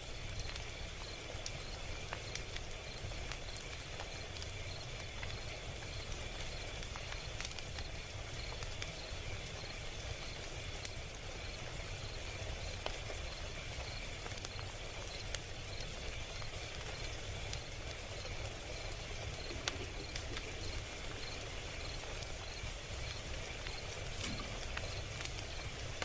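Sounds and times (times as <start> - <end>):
log fire crackling: 0.0 - 26.0
faint pulsing high-pitched sound: 18.1 - 25.6.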